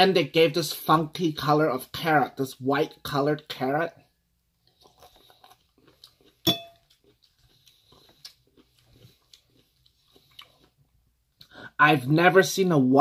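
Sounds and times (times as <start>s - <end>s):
chewing salad: 4.6s - 11.5s
metal fork clinking on bowl: 6.5s - 6.9s.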